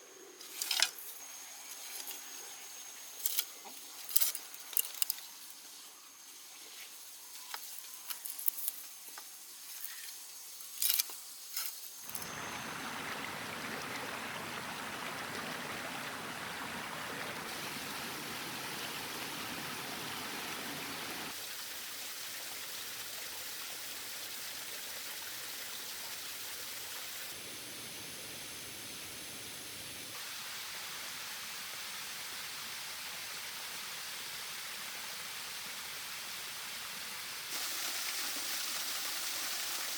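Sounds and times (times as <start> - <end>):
water splashing from waterfall: 12.1 - 27.6, 28.2 - 39.9.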